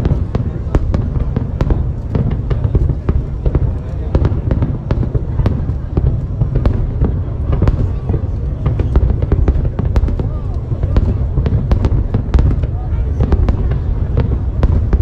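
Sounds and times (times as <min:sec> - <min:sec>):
firework bangs and cracks: 0:00.0 - 0:15.0.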